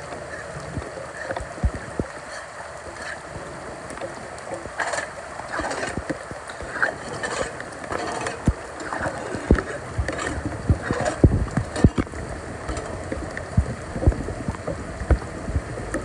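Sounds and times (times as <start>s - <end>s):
floodwater sloshing and splashing: 0.0s - 16.0s
short low thumps: 9.5s - 12.1s.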